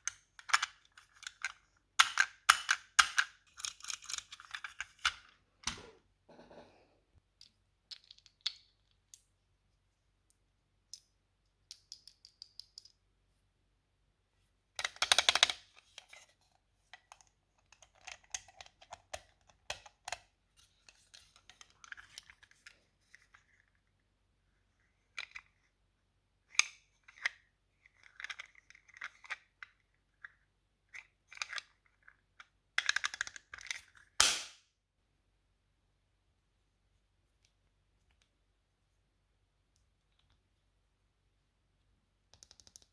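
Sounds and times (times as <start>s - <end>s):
small clicks and taps of toy pieces: 0.1s - 5.2s, 7.4s - 9.3s, 10.3s - 13.0s, 14.8s - 16.1s, 16.9s - 20.2s, 26.5s - 34.1s, 42.3s - 42.9s.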